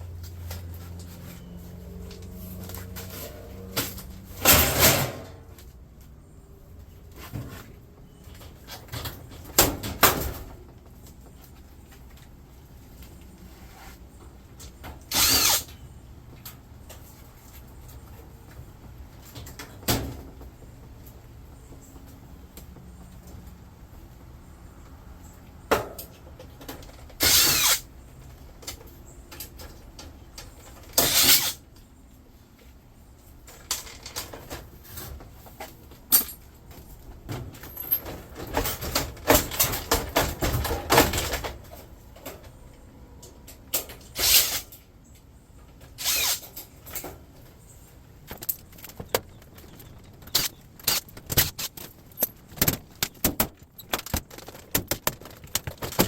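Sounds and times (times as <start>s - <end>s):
power drill bursts: 15.1s - 15.7s, 27.2s - 27.8s.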